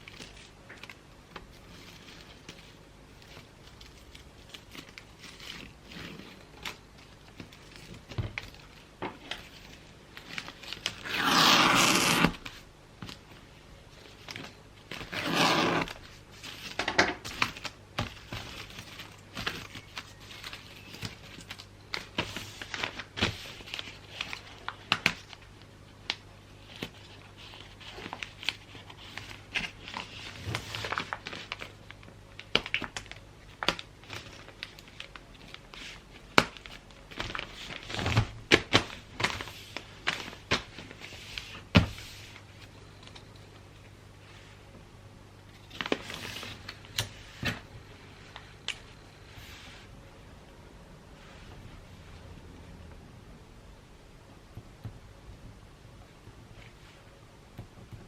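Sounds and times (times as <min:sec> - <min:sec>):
wrapping paper crinkling: 0:00.0 - 0:43.4, 0:45.6 - 0:49.6
paper ripping: 0:10.3 - 0:12.6, 0:14.9 - 0:16.1.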